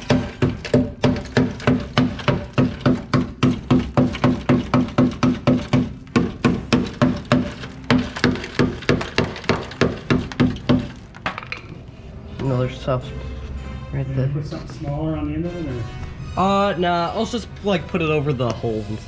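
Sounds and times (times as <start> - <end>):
hammering on metal: 0.0 - 11.5.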